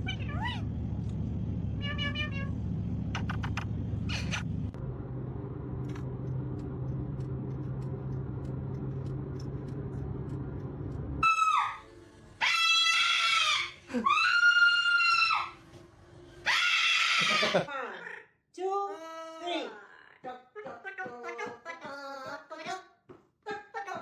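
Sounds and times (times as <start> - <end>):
parrot screaming: 0.0 - 0.6, 11.2 - 15.6, 16.4 - 17.7
steady low hum: 0.0 - 11.2.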